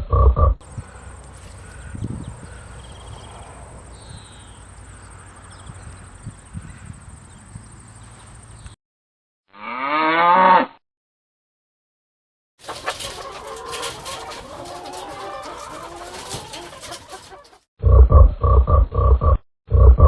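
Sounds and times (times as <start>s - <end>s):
faint chirps: 0.6s - 8.8s
farm animal calling: 0.6s - 8.8s, 12.6s - 17.6s
low outdoor background noise: 0.6s - 8.8s.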